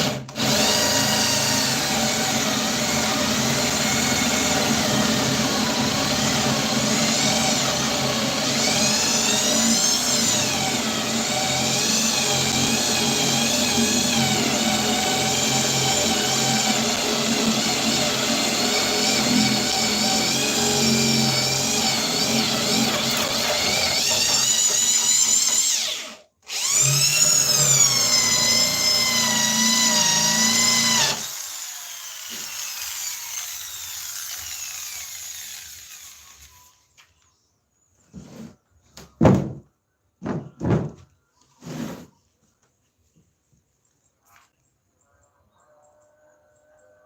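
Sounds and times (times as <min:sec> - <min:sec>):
power tool motor running: 0:00.0 - 0:36.8.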